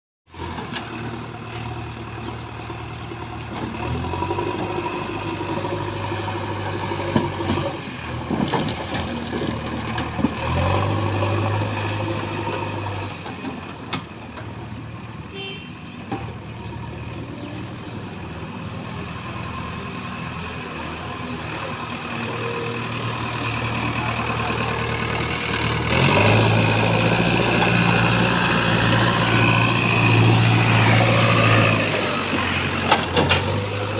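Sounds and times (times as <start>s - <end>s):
diesel engine revving: 0.3s - 15.2s, 15.9s - 33.9s.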